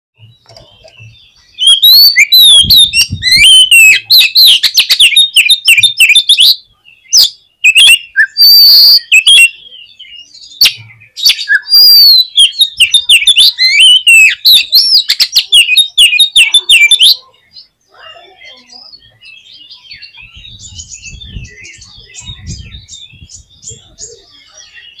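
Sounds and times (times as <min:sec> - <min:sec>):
songbird singing fast whistles: 0:00.8 - 0:17.2.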